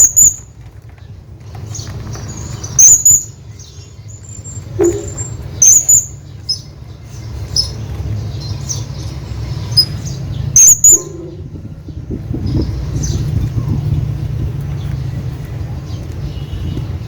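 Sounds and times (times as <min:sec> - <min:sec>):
low rumble: 0:04.6 - 0:05.6
parrot high-pitched calls: 0:04.7 - 0:06.2, 0:10.6 - 0:11.5.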